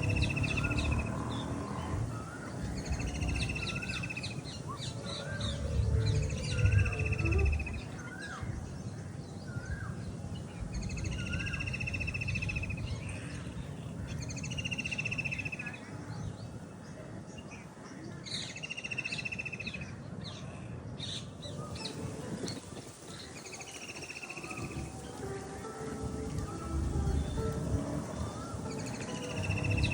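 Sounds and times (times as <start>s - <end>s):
bird trilling: 0.0s - 8.2s, 21.6s - 29.9s
bird chirps: 0.0s - 8.8s, 26.3s - 29.9s
low background rumble: 0.0s - 9.0s.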